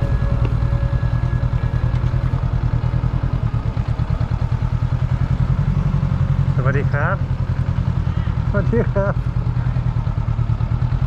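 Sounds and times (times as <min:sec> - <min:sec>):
motorbike engine running: 0:00.0 - 0:11.0.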